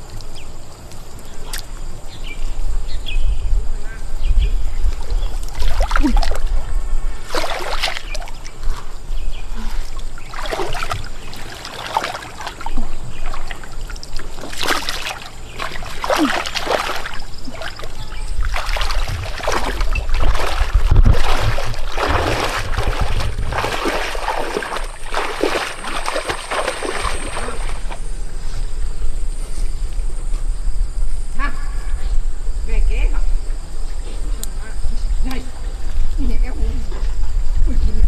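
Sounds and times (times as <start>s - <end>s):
water splashing and sloshing: 4.8s - 29.0s
low rumble: 17.4s - 38.0s.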